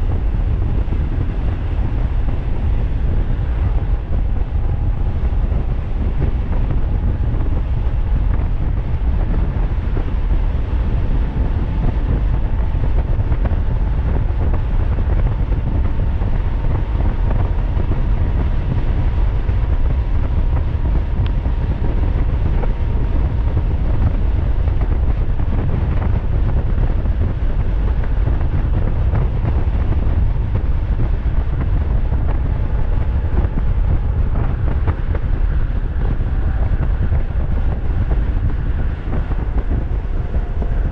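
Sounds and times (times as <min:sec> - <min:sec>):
wind rumbling on microphone: 0:00.0 - 0:40.9.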